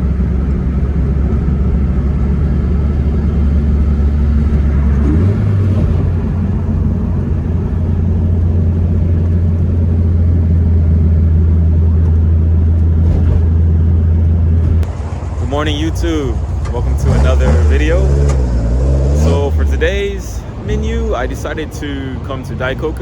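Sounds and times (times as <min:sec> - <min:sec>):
car engine running: 0:00.0 - 0:23.0.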